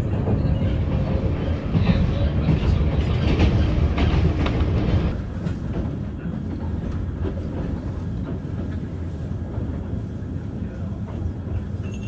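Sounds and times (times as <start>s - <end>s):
electric train rumble: 0.0s - 12.0s.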